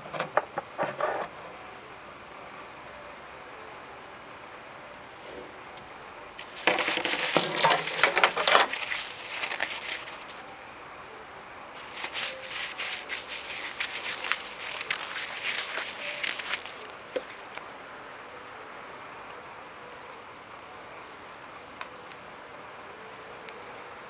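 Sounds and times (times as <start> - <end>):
close crackling crinkling noise: 6.4 - 10.7, 11.8 - 17.6.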